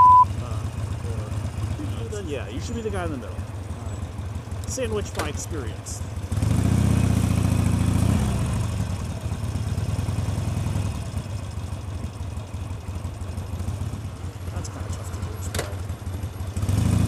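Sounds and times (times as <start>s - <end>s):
motorcycle engine running: 0.2s - 17.0s.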